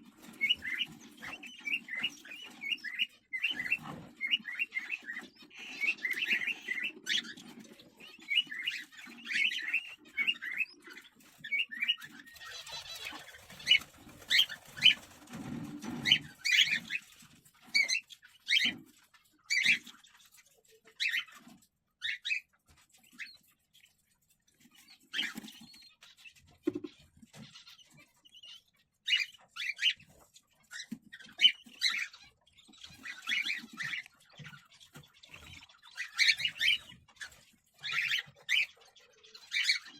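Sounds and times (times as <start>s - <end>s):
bird squawks: 0.0s - 15.1s, 30.6s - 39.9s
birds scuffling and rustling: 0.0s - 39.9s
cockatiels chirping: 0.0s - 39.9s.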